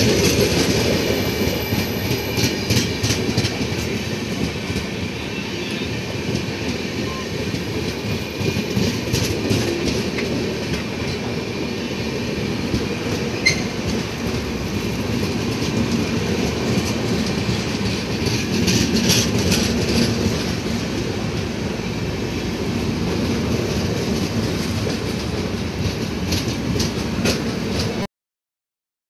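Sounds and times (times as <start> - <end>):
wheels clicking over rail joints: 0.0 - 4.9, 7.4 - 11.7, 12.4 - 28.1
wheels rumbling on rail: 0.0 - 28.1
brief sharp squeak: 13.4 - 13.8.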